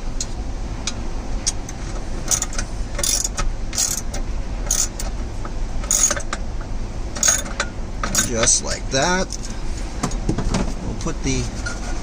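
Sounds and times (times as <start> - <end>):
ratchet wrench clicking: 2.3 - 5.1, 5.8 - 6.4, 7.2 - 8.6.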